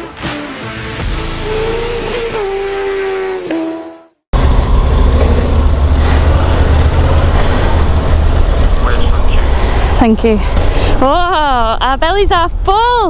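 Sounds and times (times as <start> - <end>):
background music: 0.0 - 3.0
motorcycle engine rumble: 1.0 - 12.7.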